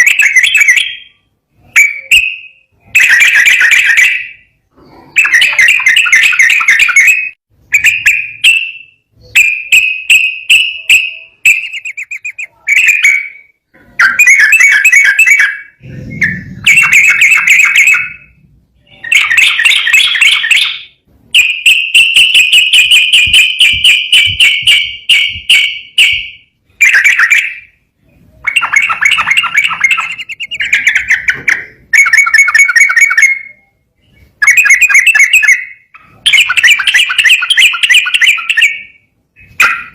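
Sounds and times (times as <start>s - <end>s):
bird singing chattering phrases: 0.0s - 39.9s.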